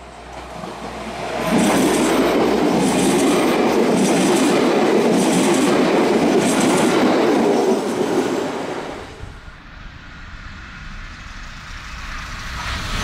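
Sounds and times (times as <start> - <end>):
train clatter bursts: 0.0 - 9.0
train wheels rushing on rail: 0.0 - 13.0.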